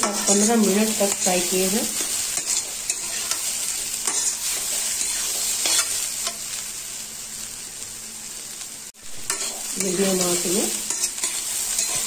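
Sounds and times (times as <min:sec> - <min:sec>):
metal spatula scraping a pan: 0:00.0 - 0:06.4, 0:09.2 - 0:12.0
food sizzling in a pan: 0:00.0 - 0:12.0.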